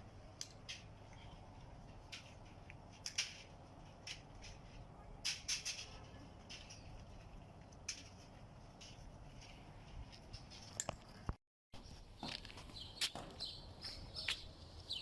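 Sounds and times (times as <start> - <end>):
low steady background rumble: 0.0 - 11.3.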